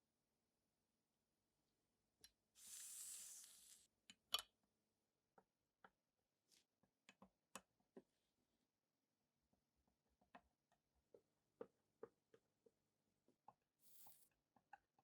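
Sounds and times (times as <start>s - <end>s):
short hiss: 2.6s - 3.9s.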